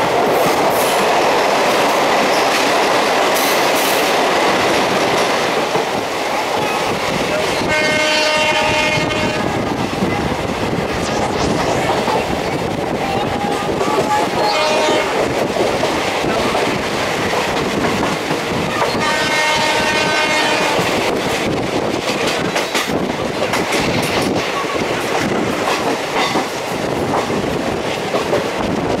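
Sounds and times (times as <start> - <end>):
train wheels rushing on rails: 0.0 - 29.0
pitched tone: 10.8 - 15.1
clacks over rail joints: 20.8 - 29.0.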